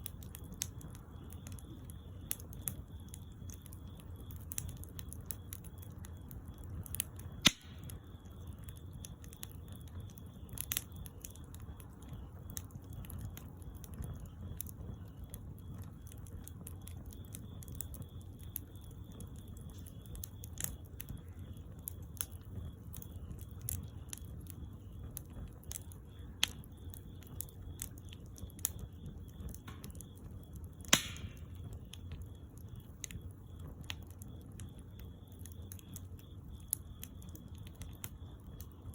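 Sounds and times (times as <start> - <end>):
bonfire crackling: 0.0 - 38.9
sharp loud pops of fire: 6.9 - 8.0, 29.6 - 30.2, 30.8 - 32.0.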